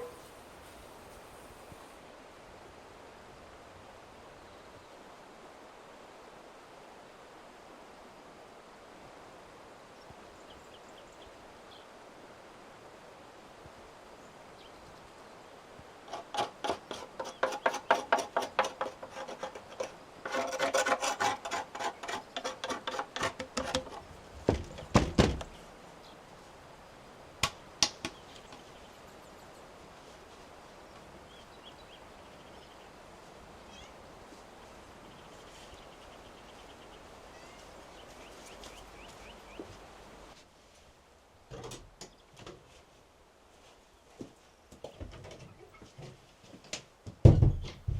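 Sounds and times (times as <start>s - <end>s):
faint steady hiss: 0.0s - 47.9s
sharp knocks and scraping: 16.1s - 25.6s.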